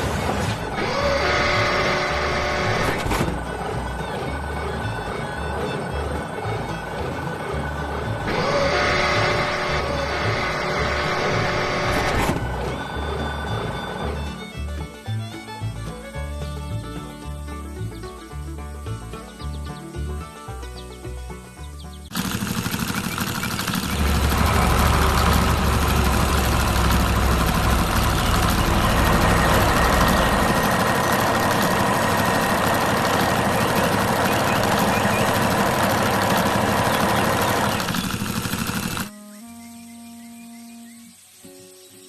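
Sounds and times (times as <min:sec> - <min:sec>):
music: 0:00.0 - 0:22.1, 0:39.0 - 0:42.0
heavy vehicle engine rumble: 0:00.0 - 0:39.1.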